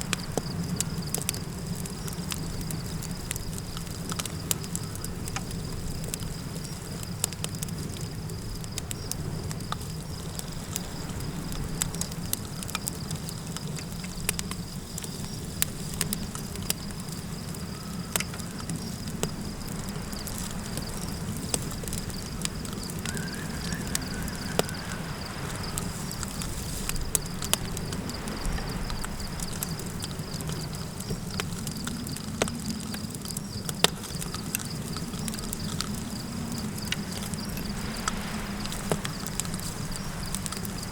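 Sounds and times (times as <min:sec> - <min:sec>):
campfire crackling and popping: 0:00.0 - 0:40.9
high insect trill: 0:00.0 - 0:40.9
low rumble of wind: 0:00.0 - 0:40.9
faint wavering call: 0:23.1 - 0:25.2.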